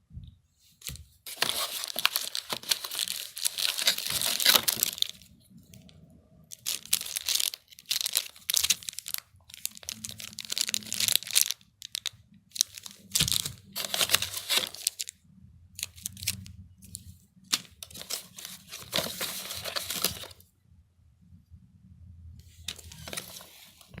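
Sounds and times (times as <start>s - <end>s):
packaging crinkling and tearing: 0.9s - 5.3s, 6.5s - 15.1s, 17.5s - 20.4s, 22.7s - 24.0s.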